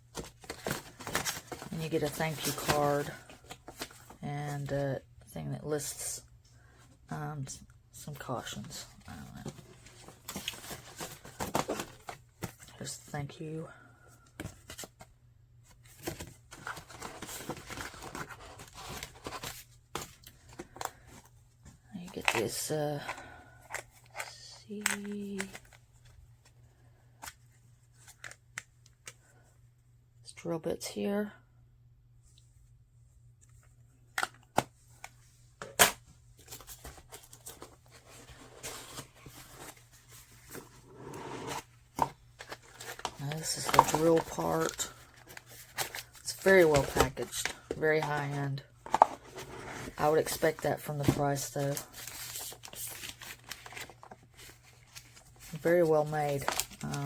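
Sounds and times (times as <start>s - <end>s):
packaging paper rustling: 0.0s - 4.7s, 8.4s - 12.6s, 15.9s - 21.4s, 35.6s - 57.0s
packaging clicks and taps: 23.7s - 25.7s.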